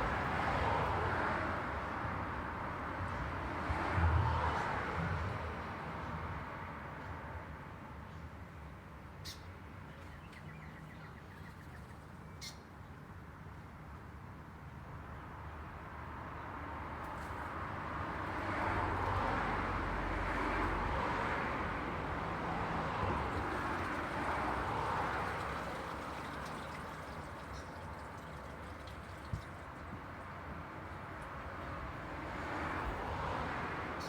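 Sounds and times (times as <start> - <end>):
passing vehicles: 0.0 - 7.6, 15.0 - 34.0.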